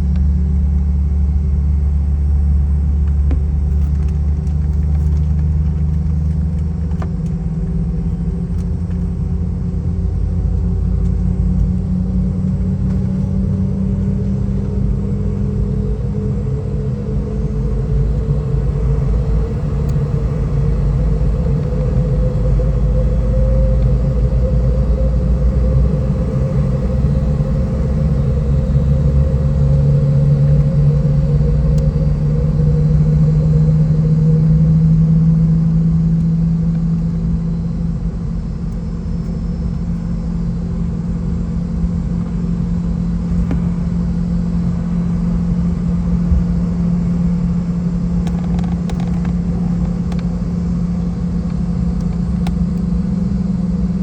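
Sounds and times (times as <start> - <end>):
aircraft cabin hum: 0.0 - 54.0
deep rumble: 0.0 - 54.0.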